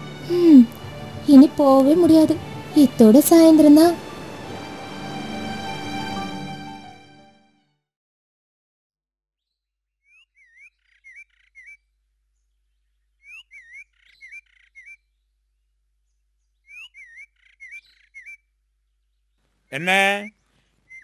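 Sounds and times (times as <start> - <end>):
faint whistled bird song: 9.4 - 19.4, 20.2 - 21.0.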